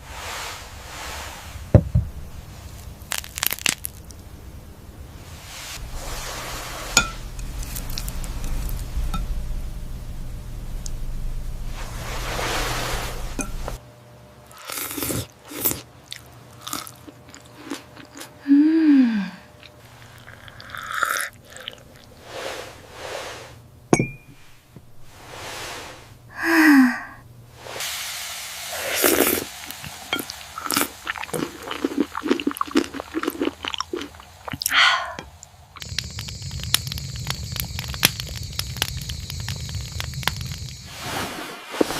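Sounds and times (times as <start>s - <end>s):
person chewing and crunching food: 3.0s - 4.2s, 5.9s - 9.1s, 14.6s - 18.4s, 19.6s - 22.2s, 29.0s - 40.8s.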